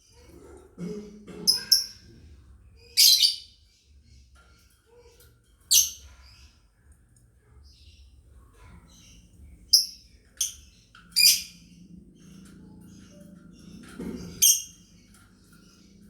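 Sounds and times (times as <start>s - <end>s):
lovebirds chirping: 7.8s - 15.8s.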